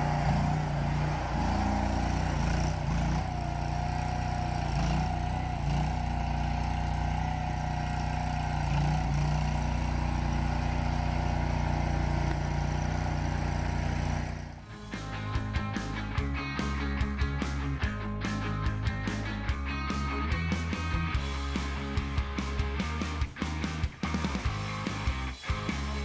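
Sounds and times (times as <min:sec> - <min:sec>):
gasoline engine running: 0:00.0 - 0:26.0
steady whine: 0:14.6 - 0:26.0.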